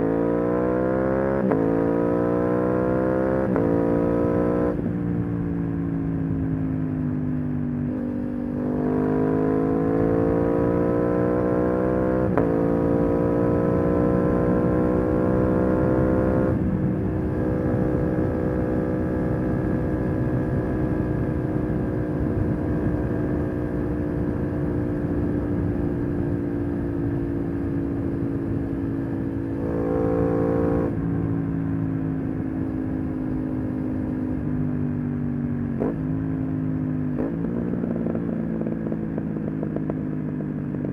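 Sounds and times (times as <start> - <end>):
motorcycle engine revving: 7.9 - 31.3.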